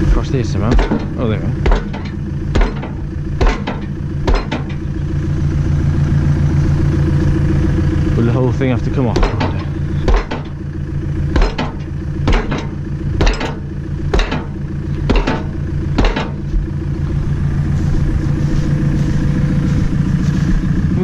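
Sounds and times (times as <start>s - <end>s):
engine idling: 0.0s - 21.0s
sharp metal-on-metal strikes: 0.6s - 4.9s, 9.2s - 10.6s, 11.4s - 16.5s.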